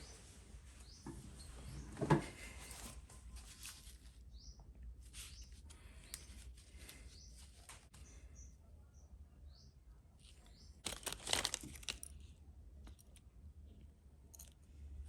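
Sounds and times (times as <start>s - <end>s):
small parts clicking and rustling: 10.2s - 15.0s.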